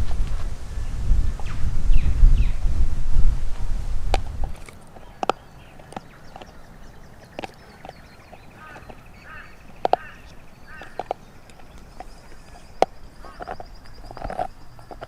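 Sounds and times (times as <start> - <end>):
sharp knocks and clicks: 9.7 - 15.0.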